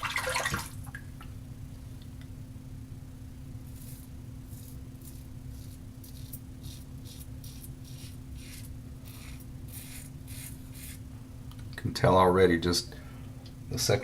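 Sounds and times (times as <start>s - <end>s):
razor scraping stubble: 3.7s - 11.0s.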